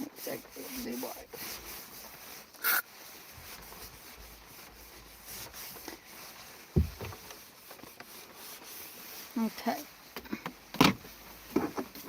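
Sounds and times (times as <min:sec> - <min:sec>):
rubbing and handling noise: 0:00.0 - 0:12.0
dull thump: 0:06.7 - 0:07.3.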